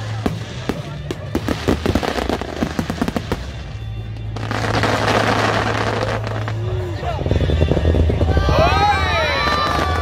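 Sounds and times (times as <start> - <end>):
crackling hiss of fireworks: 0.0 - 10.0.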